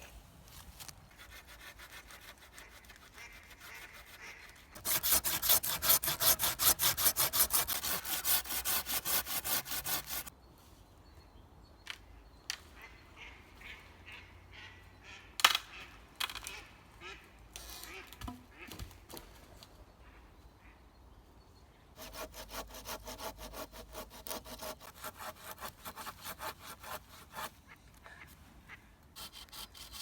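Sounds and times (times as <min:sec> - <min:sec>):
hand saw cutting wood: 0:01.1 - 0:04.2, 0:04.8 - 0:10.3, 0:22.0 - 0:27.5, 0:29.2 - 0:30.0.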